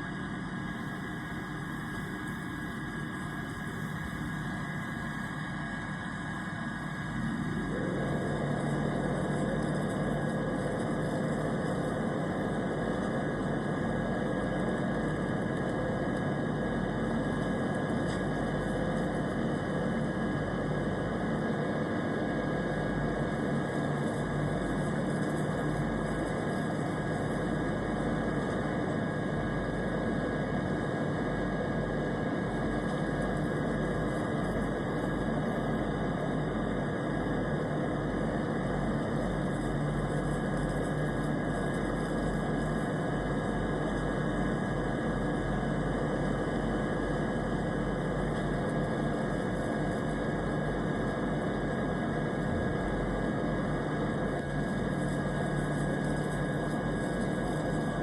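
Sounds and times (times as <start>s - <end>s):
airplane engine drone: 0.0s - 16.7s.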